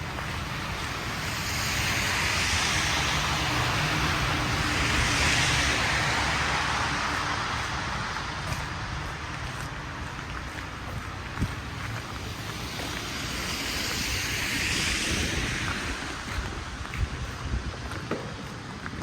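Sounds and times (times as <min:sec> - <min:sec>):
tyre hiss on snowy street: 0:00.0 - 0:19.0
vehicle engine rumble: 0:00.0 - 0:19.0.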